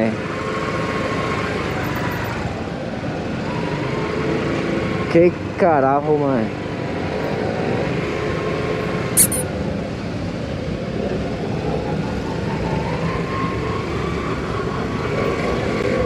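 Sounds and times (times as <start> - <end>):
high-pitched squeak: 9.2 - 9.4.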